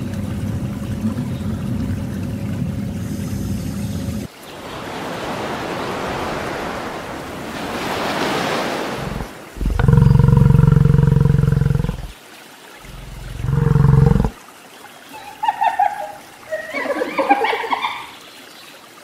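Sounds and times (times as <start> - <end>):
small waves on sandy beach: 4.3 - 9.6
bison bellowing: 9.0 - 12.1, 12.8 - 14.4.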